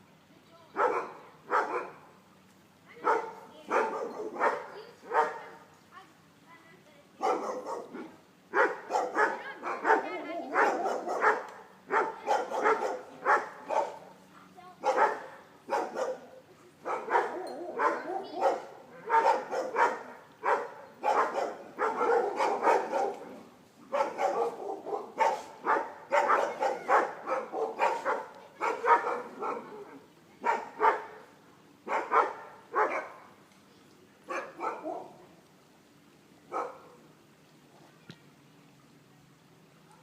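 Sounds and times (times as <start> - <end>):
dog barking: 0.8 - 2.0, 3.0 - 5.6, 7.2 - 14.1, 14.8 - 31.2, 31.9 - 33.3, 34.3 - 35.2, 36.5 - 37.0.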